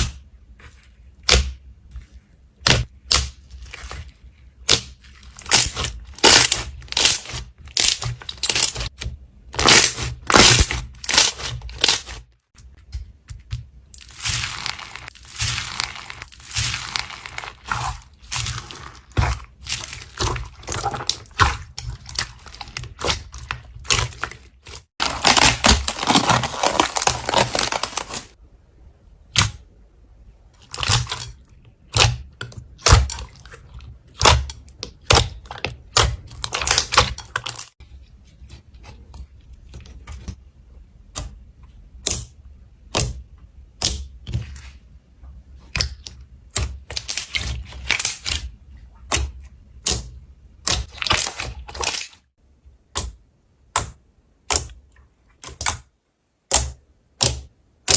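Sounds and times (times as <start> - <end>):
slime clicking and crackling: 13.4 - 28.4.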